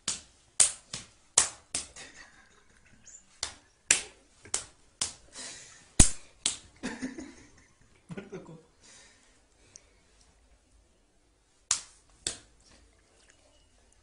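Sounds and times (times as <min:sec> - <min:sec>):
open-hand slaps: 0:00.0 - 0:02.0, 0:03.4 - 0:05.2, 0:06.0 - 0:06.7, 0:11.7 - 0:12.5.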